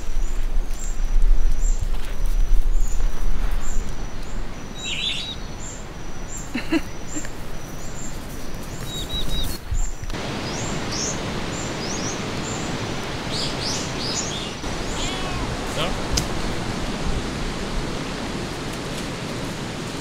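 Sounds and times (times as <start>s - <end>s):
birds chirping: 0.1s - 18.6s
outdoor hiss: 2.9s - 20.0s
bird repeating high note: 14.8s - 15.9s.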